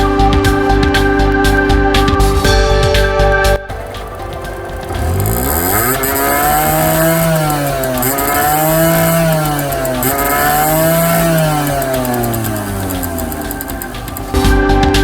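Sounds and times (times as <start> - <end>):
two-stroke engine revving: 3.7 - 14.6.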